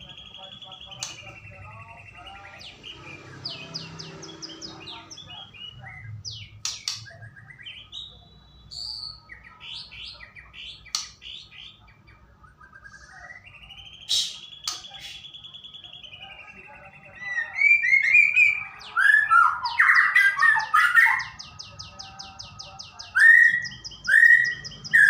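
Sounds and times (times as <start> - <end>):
bird singing whistled notes: 5.4 - 10.1, 23.0 - 25.0
bird clicking calls: 6.6 - 7.1, 10.8 - 11.4, 14.1 - 15.2.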